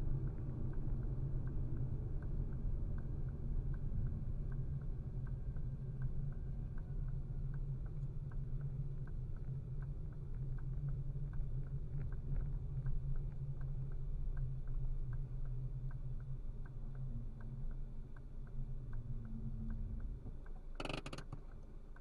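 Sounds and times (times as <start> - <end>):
light regular ticking: 0.7 - 22.0
moving car rumble: 15.9 - 22.0.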